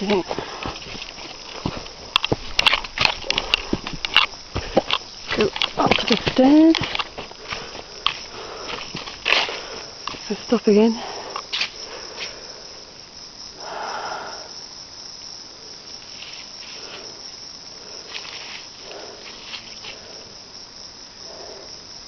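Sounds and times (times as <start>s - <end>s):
insect chorus drone: 0.0s - 22.0s
short insect calls: 0.0s - 22.0s.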